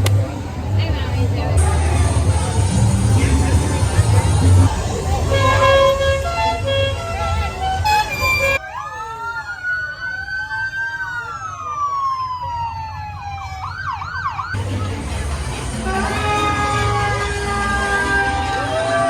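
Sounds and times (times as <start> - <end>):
festival music: 0.0 - 8.6, 14.2 - 19.0
siren wailing and yelping: 8.0 - 14.6.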